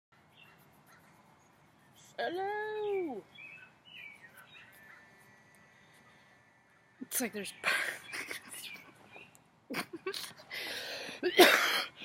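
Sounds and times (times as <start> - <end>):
songbirds chirping faintly: 0.1 - 12.0
person calling hello: 2.2 - 3.3.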